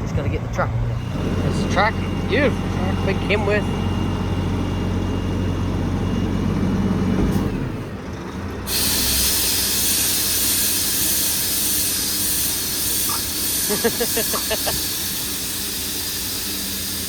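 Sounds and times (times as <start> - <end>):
truck diesel engine running: 0.0 - 17.0
compressed air hissing: 8.7 - 17.0.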